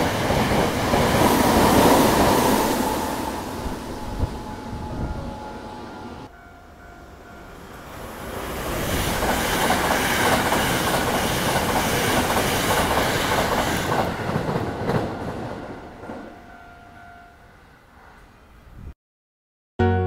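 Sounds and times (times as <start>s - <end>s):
train wheels rushing on rail: 0.0s - 6.3s, 7.6s - 16.4s.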